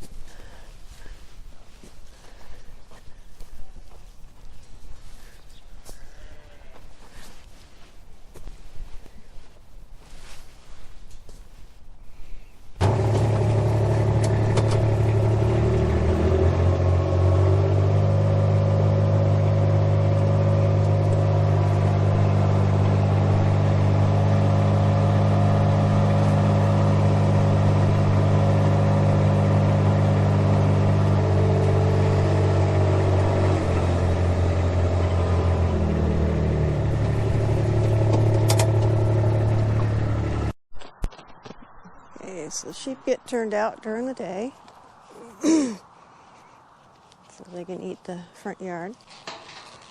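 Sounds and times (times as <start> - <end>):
vehicle engine running: 12.8 - 40.6.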